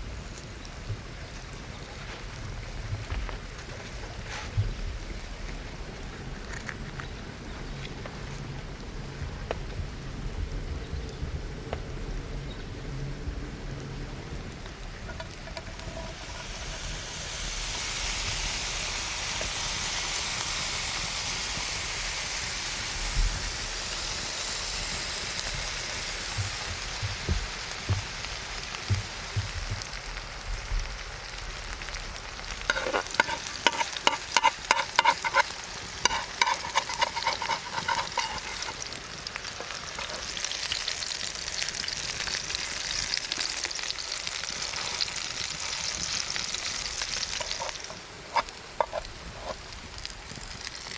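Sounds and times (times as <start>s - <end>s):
food sizzling in a pan: 15.0s - 50.9s
sharp ringing clicks and scrapes: 32.7s - 38.8s.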